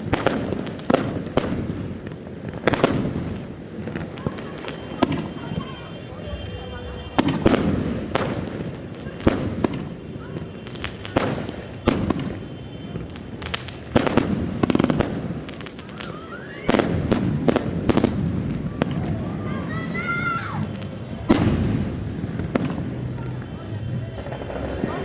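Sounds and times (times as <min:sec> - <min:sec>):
fireworks bangs echoing: 0:00.0 - 0:25.0
fireworks crackling: 0:00.0 - 0:25.0
rising firework whistle: 0:04.1 - 0:14.1, 0:14.7 - 0:22.0.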